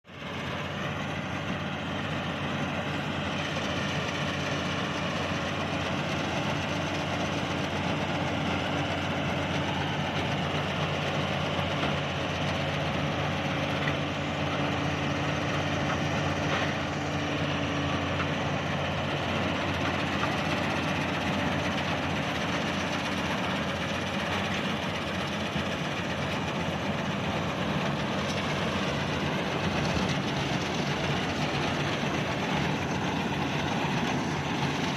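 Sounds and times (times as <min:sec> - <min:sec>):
combine harvester running: 0:00.0 - 0:34.9.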